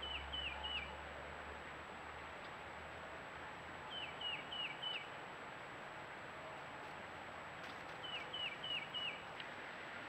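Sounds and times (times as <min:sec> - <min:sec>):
songbird singing down-slurred notes: 0:00.0 - 0:01.0, 0:03.9 - 0:05.2, 0:08.0 - 0:09.5
steady background hiss: 0:00.0 - 0:10.0.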